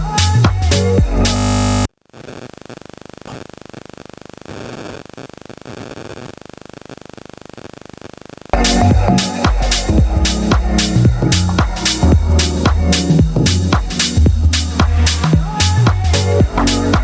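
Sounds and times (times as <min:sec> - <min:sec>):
electronic house music: 0:00.0 - 0:01.9, 0:08.5 - 0:17.0
static hiss with crackle: 0:01.3 - 0:09.9.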